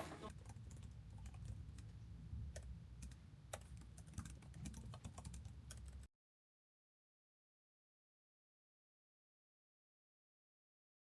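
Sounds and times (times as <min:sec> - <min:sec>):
keyboard typing: 0:02.6 - 0:06.1.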